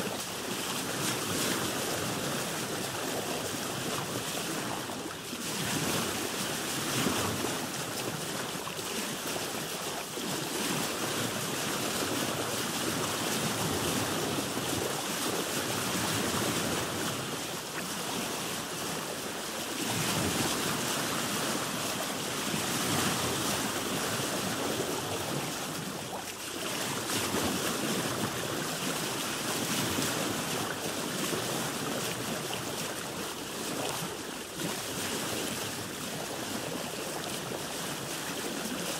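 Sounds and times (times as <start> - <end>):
sea waves washing around boat: 0.0 - 38.9.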